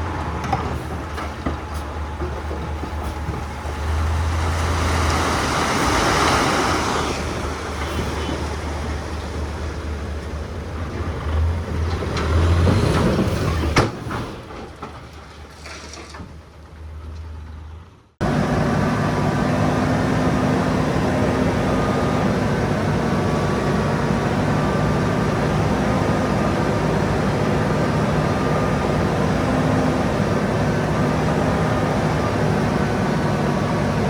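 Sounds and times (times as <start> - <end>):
diesel machinery engine drone: 16.2 - 34.0.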